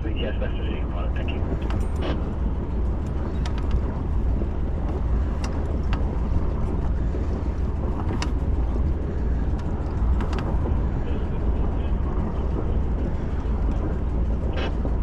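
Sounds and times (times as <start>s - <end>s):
boat engine running: 0.0s - 15.0s
light clicks and knocks: 1.5s - 11.0s.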